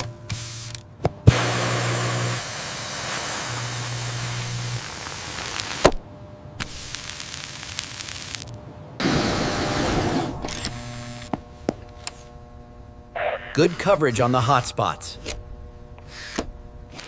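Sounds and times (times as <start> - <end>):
sprayer hissing: 1.3 - 6.0, 9.0 - 11.3
low hum: 8.4 - 14.4.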